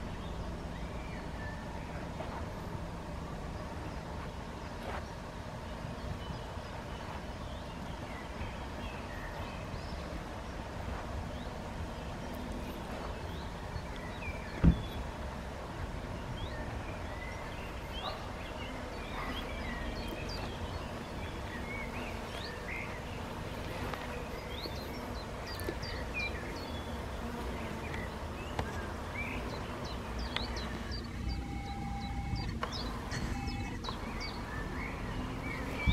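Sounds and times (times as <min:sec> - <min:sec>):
low steady rumble: 0:00.0 - 0:25.3
small birds chirping: 0:00.0 - 0:35.9.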